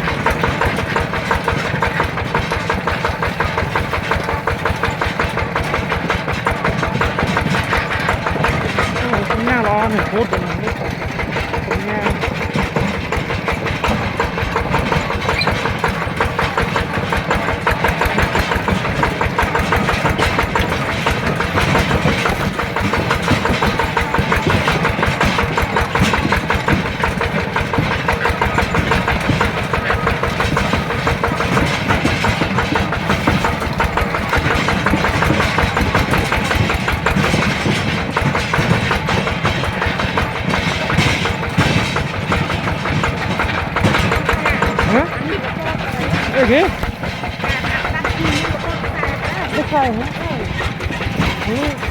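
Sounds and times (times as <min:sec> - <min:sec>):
diesel engine chugging: 0:00.0 - 0:51.9.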